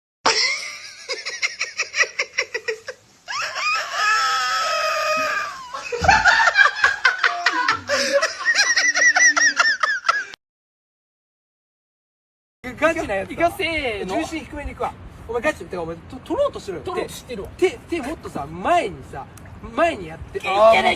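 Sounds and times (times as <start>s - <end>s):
long vocal cry: 3.3s - 6.0s
hearty laughter: 5.1s - 10.4s.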